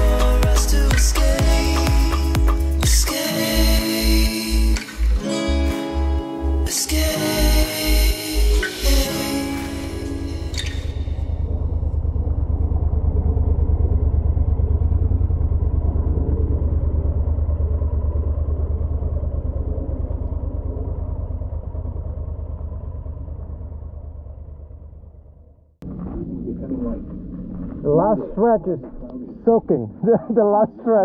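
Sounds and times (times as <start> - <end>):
motorcycle engine running: 0.0 - 5.2, 10.0 - 28.4.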